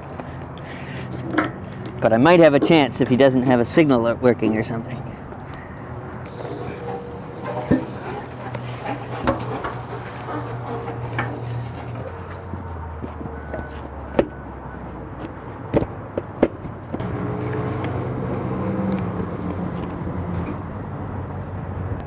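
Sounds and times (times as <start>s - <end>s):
vehicle engine running: 16.8s - 20.8s.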